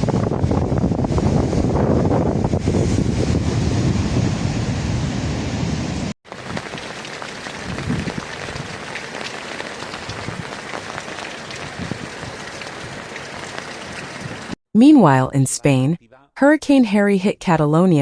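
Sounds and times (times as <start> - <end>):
wind and surf rumble: 0.0 - 14.6
heavy rain on hard surfaces: 3.3 - 14.6.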